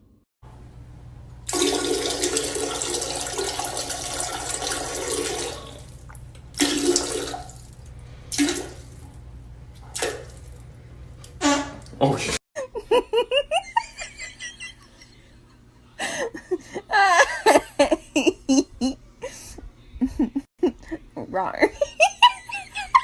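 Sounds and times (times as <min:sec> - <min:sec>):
water gushing: 0:01.5 - 0:06.0, 0:06.6 - 0:07.7
short spurts of water: 0:01.5 - 0:09.1, 0:09.8 - 0:10.6.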